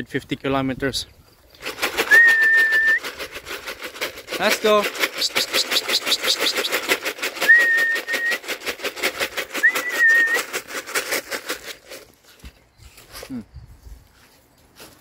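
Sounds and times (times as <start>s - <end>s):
fast even rattle: 1.5s - 12.1s
person whistling: 2.0s - 3.1s, 7.4s - 8.4s, 9.6s - 10.5s.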